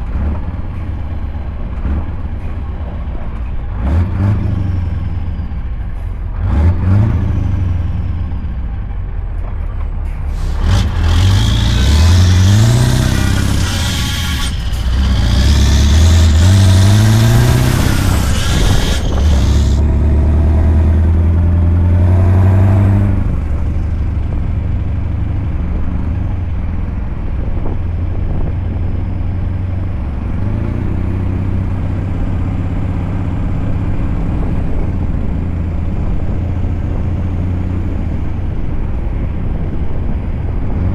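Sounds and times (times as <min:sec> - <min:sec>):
truck engine accelerating: 0:00.0 - 0:25.6.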